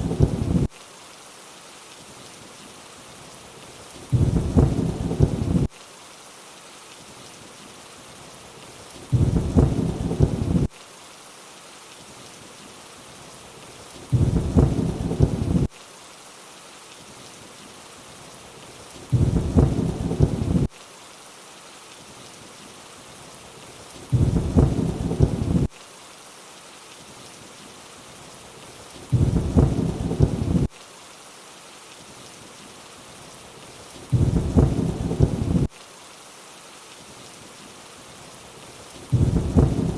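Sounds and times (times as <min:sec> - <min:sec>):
low thunder rumble: 0:00.0 - 0:00.7, 0:04.1 - 0:05.7, 0:09.1 - 0:10.7, 0:14.1 - 0:15.7, 0:19.1 - 0:20.7, 0:24.1 - 0:25.7, 0:29.1 - 0:30.7, 0:34.1 - 0:35.7, 0:39.1 - 0:39.9
rainfall hiss: 0:00.0 - 0:39.9.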